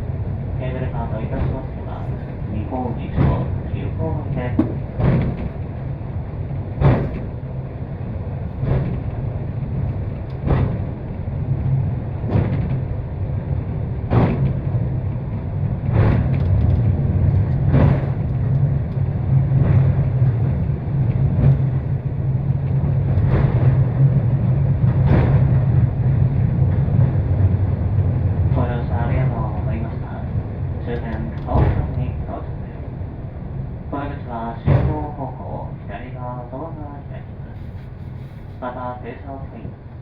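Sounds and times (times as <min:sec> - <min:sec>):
cable car rumbling: 0:00.0 - 0:40.0
wheels clunking over track: 0:01.2 - 0:05.9, 0:06.5 - 0:13.0, 0:13.7 - 0:28.6, 0:30.9 - 0:32.2.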